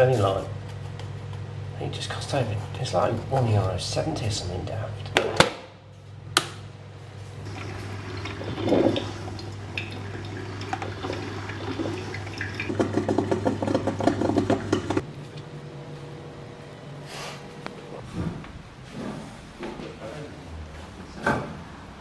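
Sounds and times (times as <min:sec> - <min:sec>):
electric hum: 0:06.2 - 0:18.9
water running: 0:07.3 - 0:15.5
bubbling and crackling: 0:07.4 - 0:15.6.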